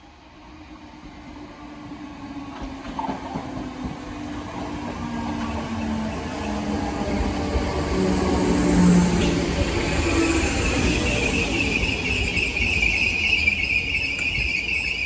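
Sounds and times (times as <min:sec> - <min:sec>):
train wheels rumbling: 0:01.8 - 0:15.0.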